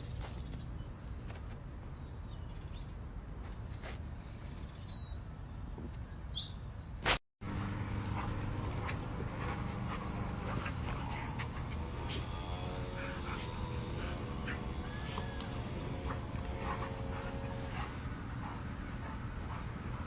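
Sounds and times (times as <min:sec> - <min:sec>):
birds chirping: 0:00.0 - 0:07.0, 0:07.6 - 0:20.0
steady outdoor rumble: 0:00.0 - 0:20.0
steady low hum: 0:07.4 - 0:20.0.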